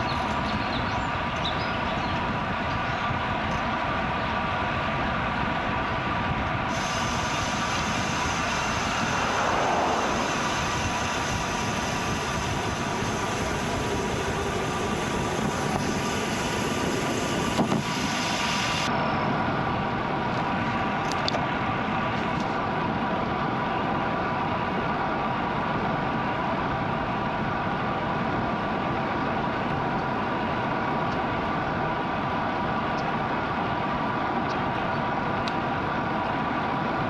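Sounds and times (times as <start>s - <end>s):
bicycle tyres on road: 0.0s - 37.0s
wind on microphone: 5.4s - 18.9s
hiss: 6.7s - 18.9s.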